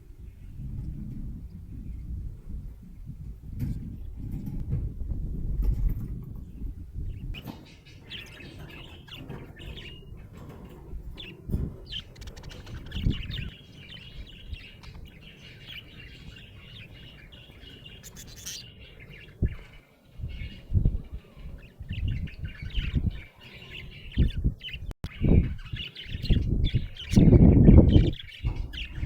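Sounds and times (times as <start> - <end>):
budgerigar chirping: 11.2 - 19.6.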